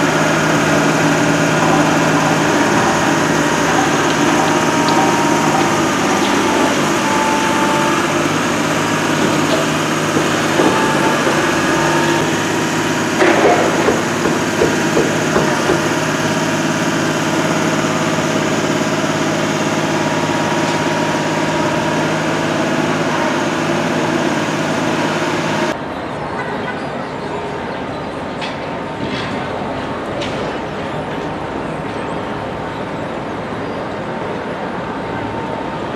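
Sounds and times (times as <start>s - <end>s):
engine idling: 0.0s - 25.8s.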